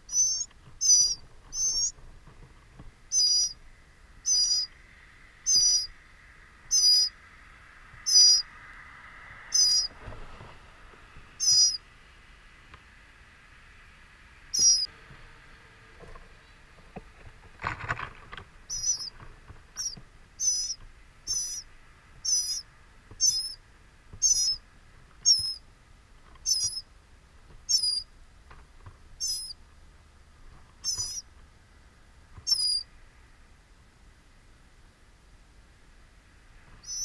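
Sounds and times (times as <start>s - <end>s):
high wavering bird chirp: 0.0s - 2.0s, 3.1s - 3.6s, 4.2s - 7.2s, 8.0s - 8.6s, 9.5s - 10.0s, 11.4s - 11.8s, 14.5s - 14.9s, 18.7s - 23.6s, 24.2s - 25.7s, 26.4s - 26.9s, 27.6s - 28.1s, 29.2s - 29.6s, 30.8s - 31.3s, 32.4s - 32.9s, 36.8s - 37.0s
rustle at nest: 0.0s - 37.0s.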